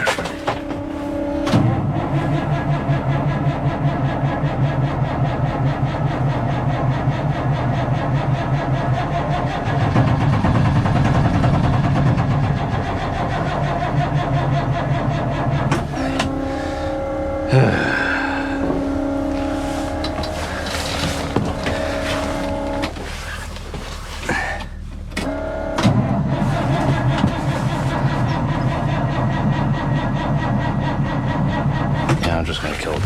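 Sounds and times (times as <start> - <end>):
truck starter cranking engine: 0.0 - 33.0
steady hum: 13.9 - 25.4.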